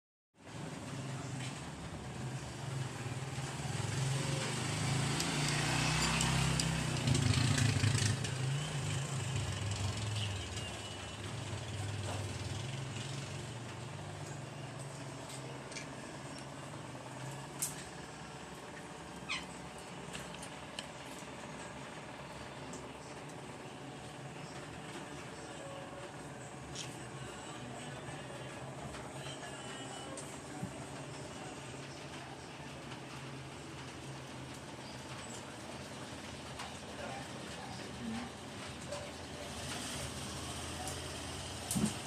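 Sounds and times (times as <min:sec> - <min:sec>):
passing vehicle engine hum: 0:02.2 - 0:16.2.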